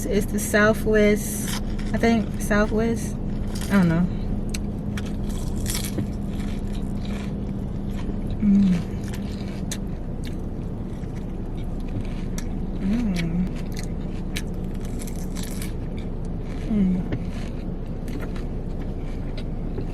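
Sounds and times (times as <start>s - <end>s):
low car hum: 0.0s - 19.9s
person chewing crunchy salad: 1.2s - 19.9s
person humming: 8.4s - 9.0s, 12.8s - 13.5s, 16.7s - 17.1s.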